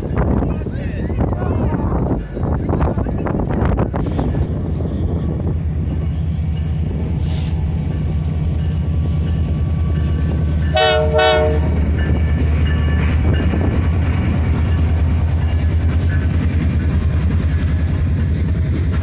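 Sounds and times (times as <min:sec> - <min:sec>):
diesel locomotive rumbling past: 0:00.0 - 0:19.0
train horn blasts: 0:10.7 - 0:11.9.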